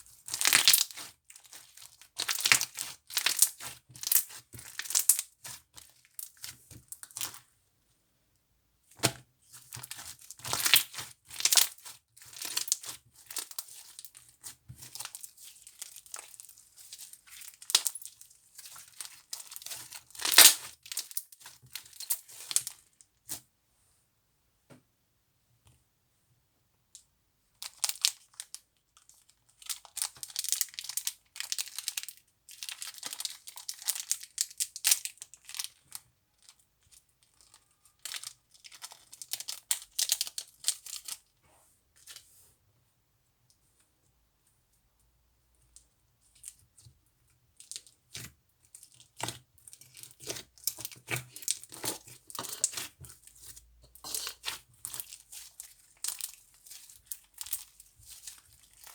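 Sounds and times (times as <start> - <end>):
slime crinkling and crackling: 0.0 - 7.4, 9.5 - 22.9, 27.6 - 41.2, 47.5 - 58.9.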